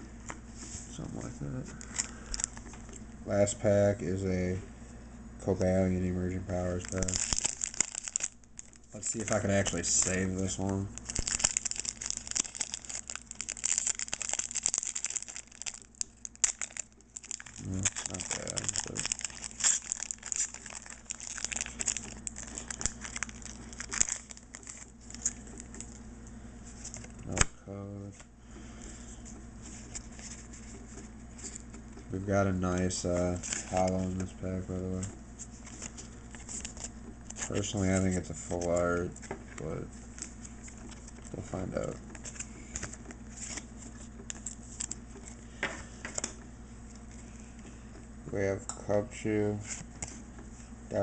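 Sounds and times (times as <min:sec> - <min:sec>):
foil wrapper crinkling: 0:06.5 - 0:26.0, 0:40.0 - 0:45.4
trading cards being handled: 0:06.6 - 0:26.0, 0:28.9 - 0:47.2
papery rustling: 0:06.7 - 0:26.0.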